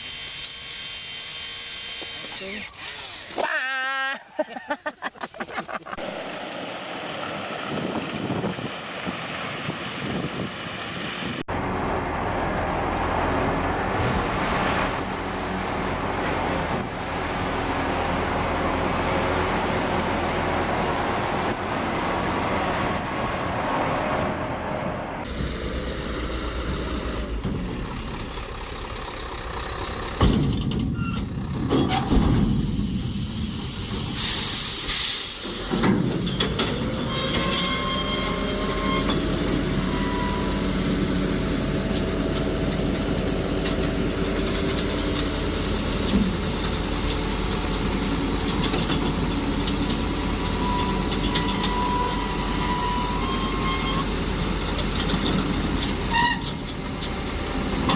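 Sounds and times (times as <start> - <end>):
diesel engine hum: 5.9 - 57.9
short sharp hiss: 32.4 - 35.7.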